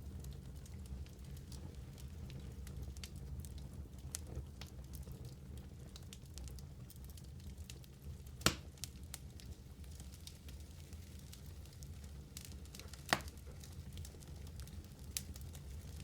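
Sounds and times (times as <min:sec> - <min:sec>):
wood fire crackling: 0:00.0 - 0:16.0
loud sharp pop from fire: 0:08.4 - 0:08.7, 0:13.0 - 0:13.4.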